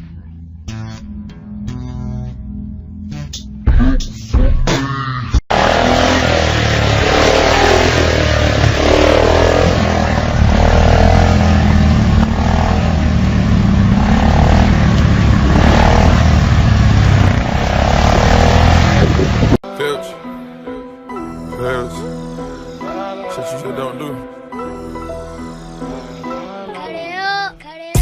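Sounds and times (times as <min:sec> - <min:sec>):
motorcycle engine rumble: 0:05.5 - 0:19.6
wind rushing noise: 0:07.1 - 0:19.6.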